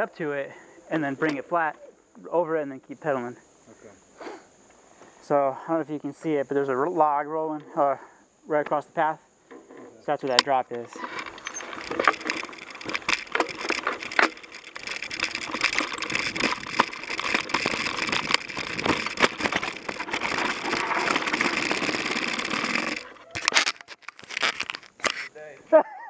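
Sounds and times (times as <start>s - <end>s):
bike rattling clicks and knocks: 10.3s - 25.3s
bike tyres crunching over twigs: 10.8s - 25.3s.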